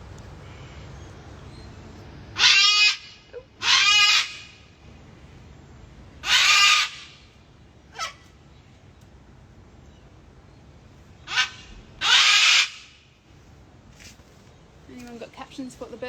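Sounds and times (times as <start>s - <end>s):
cockatoo screeching: 2.4s - 4.6s, 6.2s - 7.1s, 11.3s - 12.9s.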